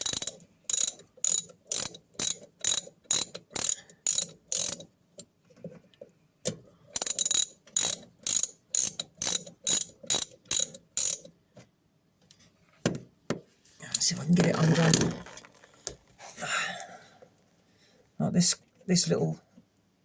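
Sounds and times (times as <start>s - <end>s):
ratchet wrench clicking: 0.0s - 4.9s, 6.9s - 11.3s.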